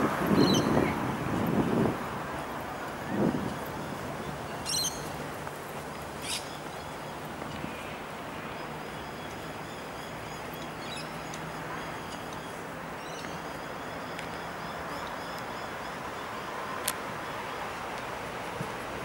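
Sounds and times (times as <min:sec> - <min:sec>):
traffic hum: 0:00.0 - 0:19.0
bird calls and chirping: 0:00.4 - 0:00.9, 0:03.9 - 0:05.1, 0:06.2 - 0:07.3.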